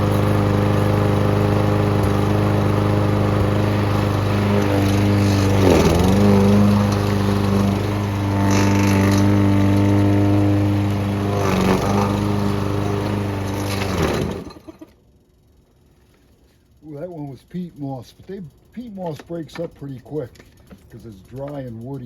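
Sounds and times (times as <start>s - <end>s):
garden shredder engine running: 0.0s - 15.0s.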